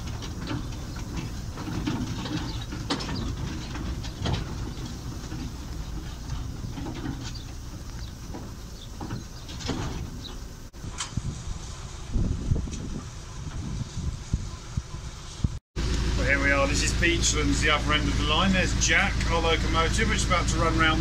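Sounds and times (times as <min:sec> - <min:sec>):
wheel clicks and knocks: 0:00.0 - 0:11.1
train carriage rumbling: 0:00.0 - 0:21.0.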